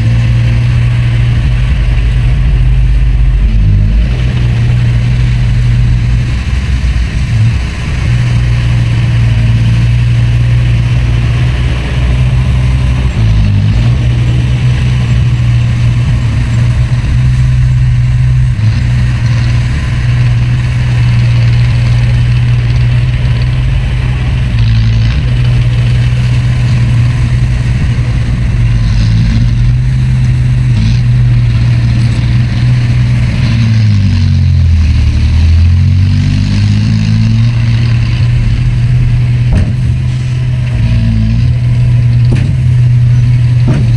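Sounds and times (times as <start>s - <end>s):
heavy diesel engine droning: 0.0s - 43.9s.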